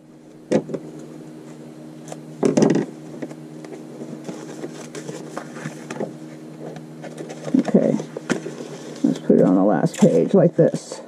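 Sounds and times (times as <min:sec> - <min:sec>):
steady low hum: 0:00.0 - 0:11.0
paper rustling: 0:03.2 - 0:10.4.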